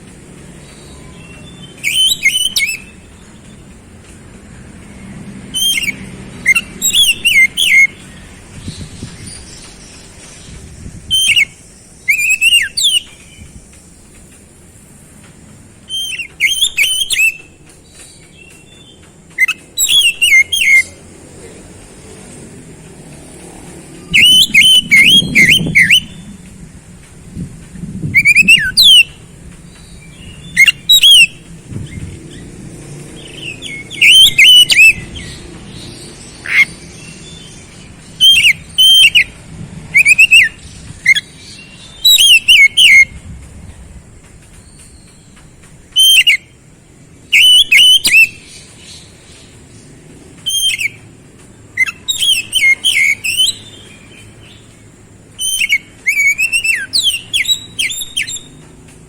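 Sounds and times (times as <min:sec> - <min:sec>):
bird singing whistled notes: 0:00.3 - 0:03.8, 0:05.0 - 0:14.2, 0:15.8 - 0:21.0, 0:24.0 - 0:26.5, 0:28.1 - 0:32.5, 0:33.1 - 0:43.2, 0:44.6 - 0:46.6, 0:47.2 - 0:49.7, 0:50.4 - 0:51.0, 0:51.7 - 0:58.7.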